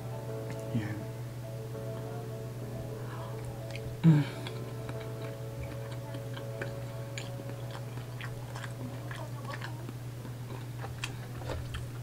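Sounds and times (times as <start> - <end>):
low hum: 0.0 - 12.0
person chewing with wet clicks: 3.4 - 12.0.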